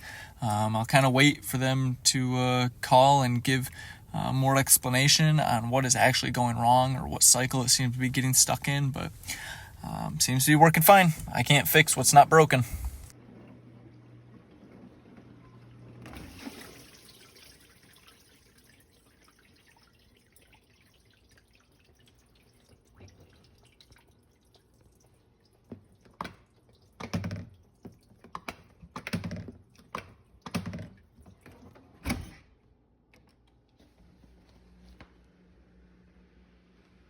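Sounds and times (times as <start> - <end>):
water splashing in dishwasher: 14.3 - 31.9.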